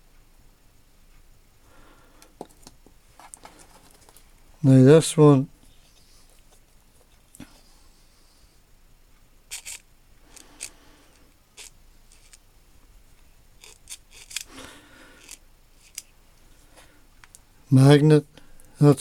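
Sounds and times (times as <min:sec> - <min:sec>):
faint rustling: 0:01.7 - 0:08.6.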